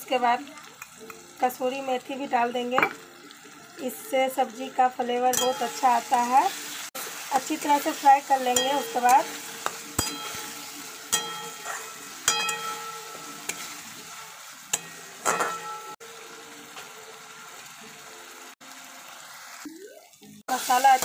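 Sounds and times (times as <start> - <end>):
masala sizzling in hot oil: 0.0 - 21.0
metal spatula scraping pan: 7.7 - 16.0.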